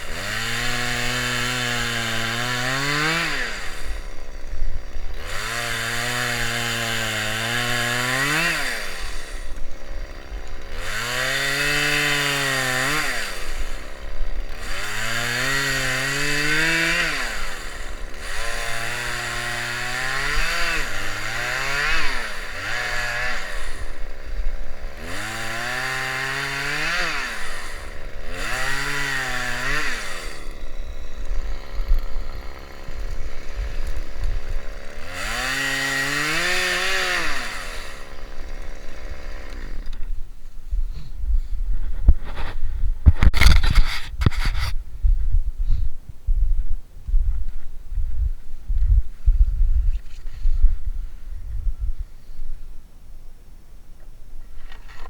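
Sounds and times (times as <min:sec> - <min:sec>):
small engine revving: 0:00.0 - 0:40.2.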